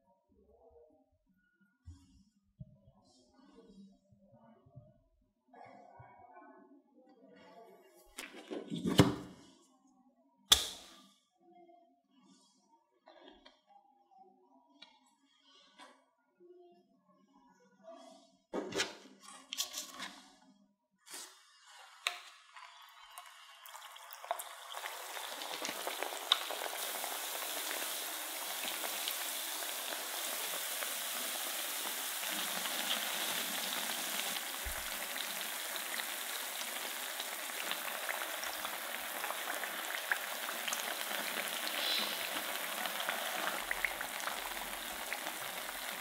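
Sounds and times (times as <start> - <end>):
snacks deep-frying in oil: 22.0 - 46.0
oil popping and crackling: 23.0 - 46.0.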